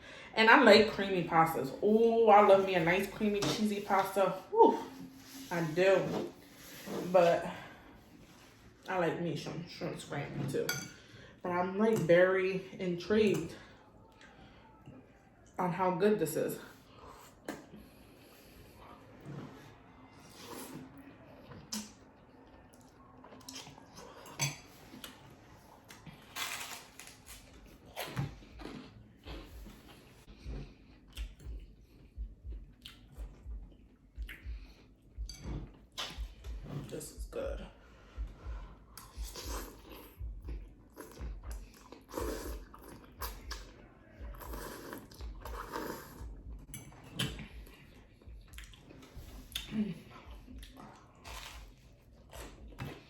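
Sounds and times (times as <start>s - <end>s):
chewing and wet mouth sounds: 16.8s - 37.0s, 37.6s - 53.0s.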